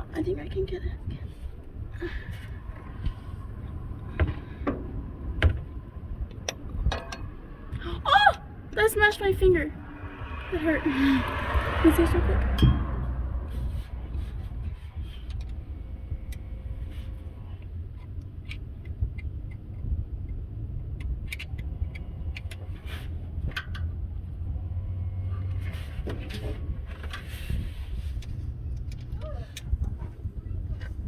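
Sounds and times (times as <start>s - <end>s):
low rumble: 0.0s - 22.4s.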